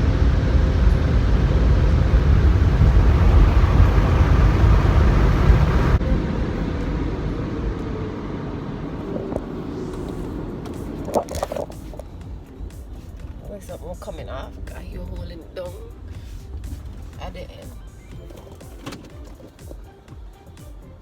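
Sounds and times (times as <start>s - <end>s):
car wash air dryer blowing: 0.0s - 15.0s.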